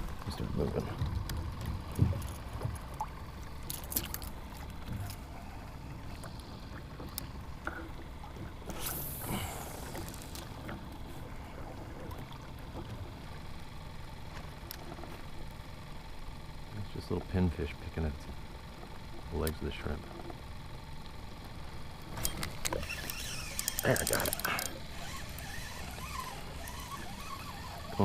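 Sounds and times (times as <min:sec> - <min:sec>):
water lapping against kayak hull: 0:00.0 - 0:15.5, 0:21.0 - 0:28.0
steady low rumble: 0:00.0 - 0:18.5
brief hiss: 0:08.7 - 0:10.4.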